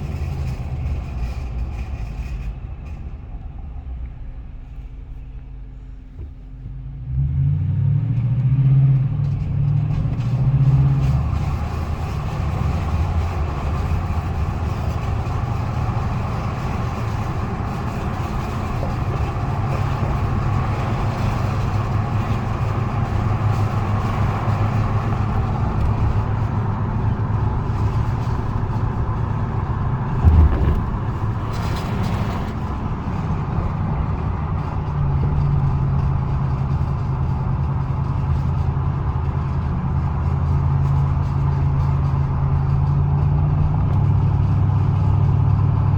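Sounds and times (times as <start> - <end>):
pickup truck engine running: 8.9 - 45.9
short knock: 30.2 - 31.5.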